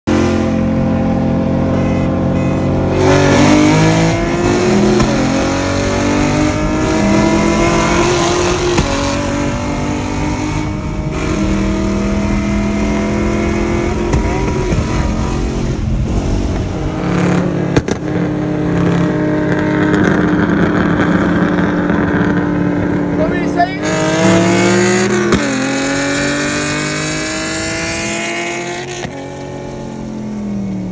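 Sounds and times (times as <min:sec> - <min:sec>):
car engines at full throttle: 0:00.0 - 0:30.9.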